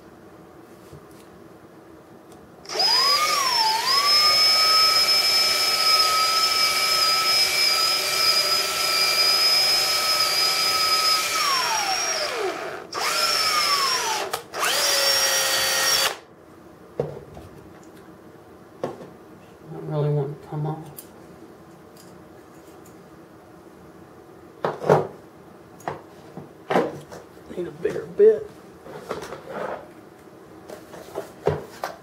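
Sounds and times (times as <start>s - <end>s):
electric drill whining: 2.6s - 16.2s.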